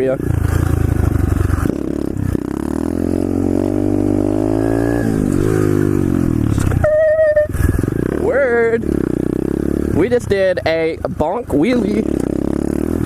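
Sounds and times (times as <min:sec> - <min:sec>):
motorbike engine revving: 0:00.0 - 0:13.0
high steady tone: 0:06.8 - 0:07.8.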